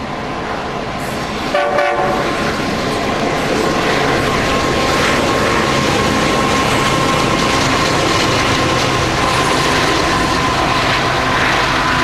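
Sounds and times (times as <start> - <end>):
freight train passing close: 0.0 - 12.0.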